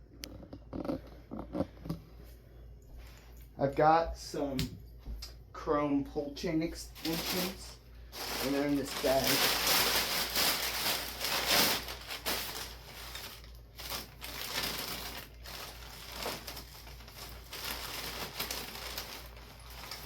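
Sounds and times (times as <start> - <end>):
bag crinkling and rustling: 6.7 - 20.0.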